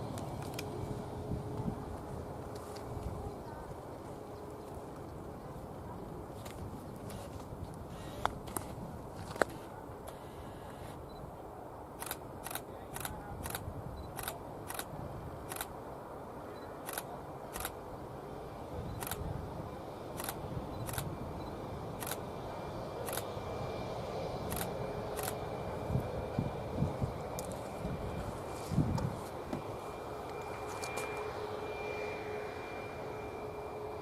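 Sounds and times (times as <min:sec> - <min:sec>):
outdoor background hum: 0:00.0 - 0:34.0
camera shutter clicks: 0:24.5 - 0:25.4.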